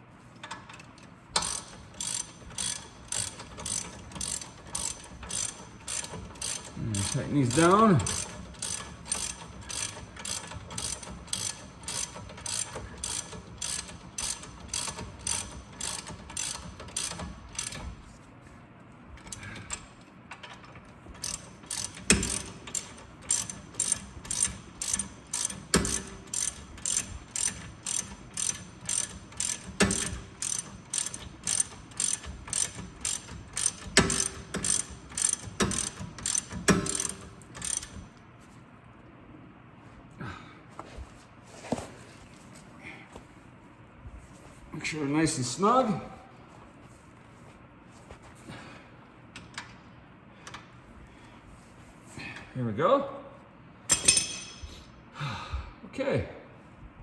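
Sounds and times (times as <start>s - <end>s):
hand ratchet clicking: 1.4s - 17.9s, 19.2s - 38.1s.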